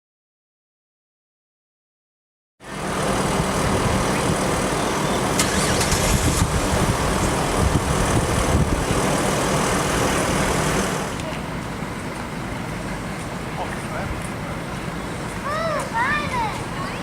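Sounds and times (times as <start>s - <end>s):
vehicle engine idling: 2.6s - 15.5s.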